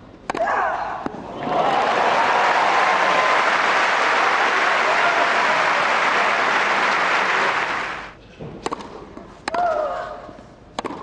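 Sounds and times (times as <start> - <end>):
crowd applauding: 1.3 - 8.2
tennis ball bouncing on court: 8.6 - 9.6, 10.8 - 11.0.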